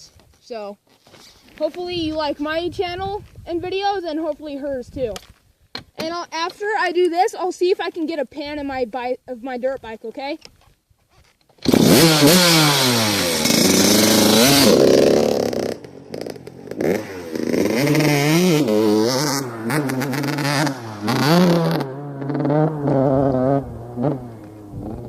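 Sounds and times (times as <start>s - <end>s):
dirt bike engine revving: 11.6s - 25.0s.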